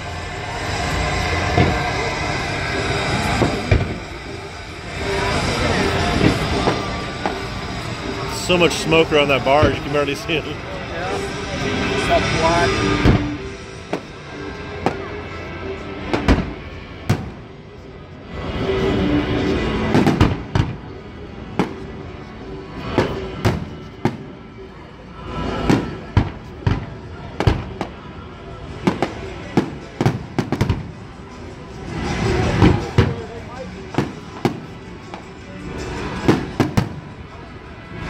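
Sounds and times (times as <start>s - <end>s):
fireworks bursting with bangs: 0.4s - 10.3s, 12.7s - 15.4s, 16.0s - 17.6s, 18.5s - 24.4s, 25.3s - 37.3s.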